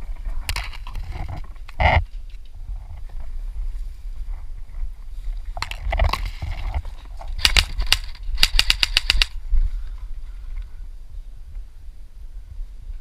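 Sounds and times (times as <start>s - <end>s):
airsoft gun shots: 7.4s - 9.4s.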